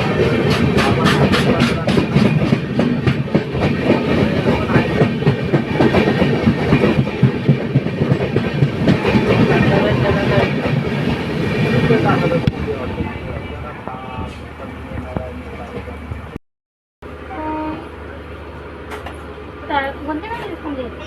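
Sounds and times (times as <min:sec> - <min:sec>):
train wheels clattering over rails: 0:00.0 - 0:13.3.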